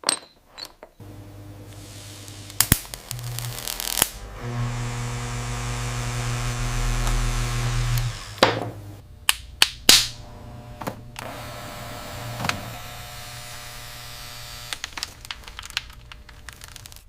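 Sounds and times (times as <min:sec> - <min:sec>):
small electric motor humming: 0:01.0 - 0:09.0, 0:10.2 - 0:15.3.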